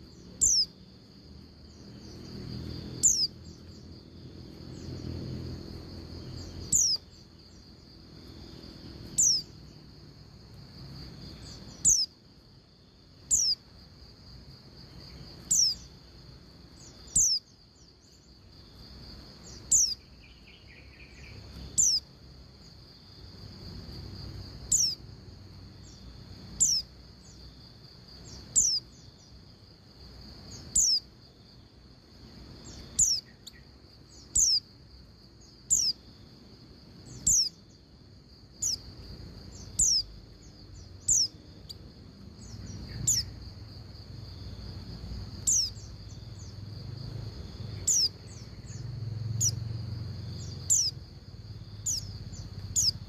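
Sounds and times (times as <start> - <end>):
bird call notes: 6.7 - 7.1.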